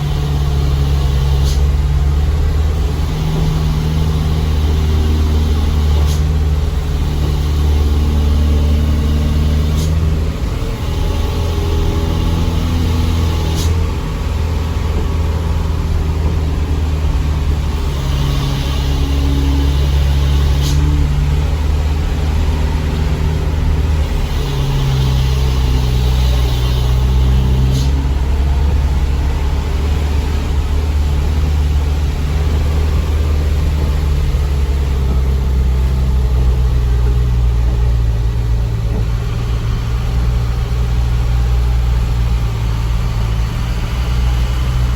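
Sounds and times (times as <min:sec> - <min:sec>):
diesel truck engine running: 0:00.0 - 0:44.9
brief hissing: 0:20.4 - 0:21.1.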